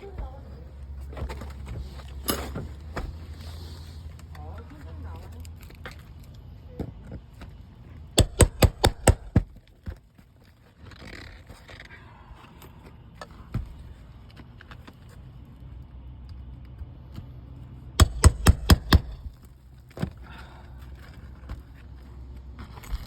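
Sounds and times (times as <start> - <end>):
hammer striking metal tool: 8.2 - 9.4, 18.0 - 19.3.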